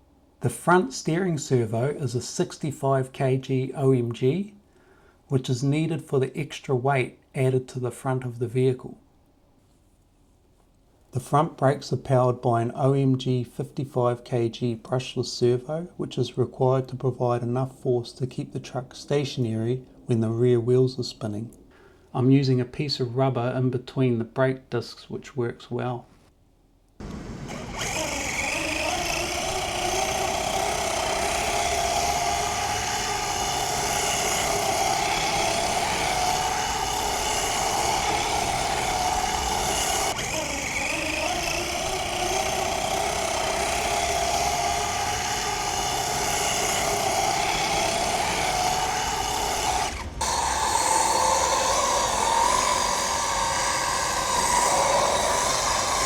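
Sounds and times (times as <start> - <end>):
electric motor high whine: 27.0 - 56.0.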